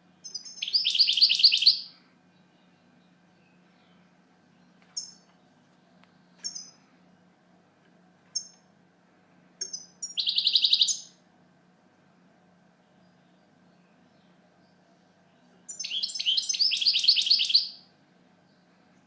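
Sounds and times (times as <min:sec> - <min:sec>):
goldfinch chirping and trilling: 0:00.2 - 0:01.9, 0:06.4 - 0:06.8, 0:09.6 - 0:11.1, 0:15.7 - 0:17.8.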